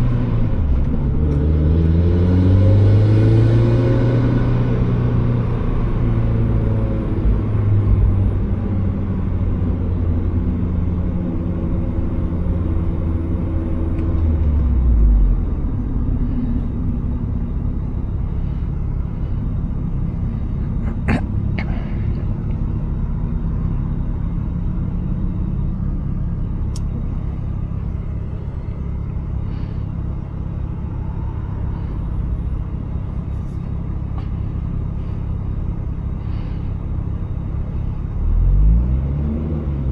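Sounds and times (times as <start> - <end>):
car engine: 0.0 - 39.9
road rumble: 0.0 - 39.9.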